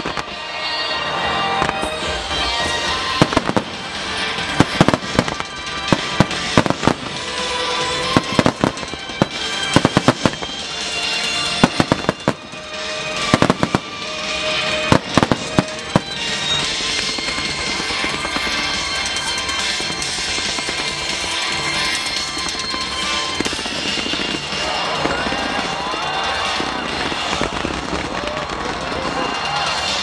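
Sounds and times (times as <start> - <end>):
fireworks bursting: 0.0 - 30.0
music playing: 0.0 - 30.0.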